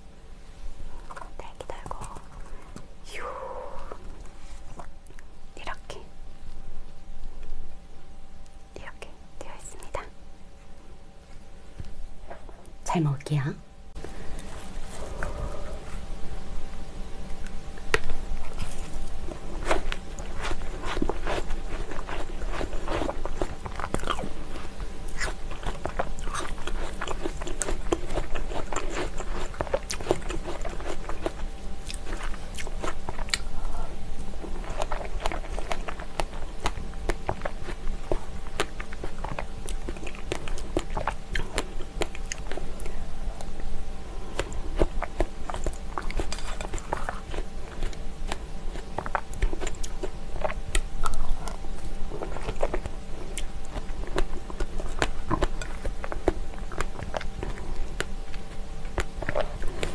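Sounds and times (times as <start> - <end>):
chewing and crunching fruit: 14.0 - 16.1, 17.2 - 59.9.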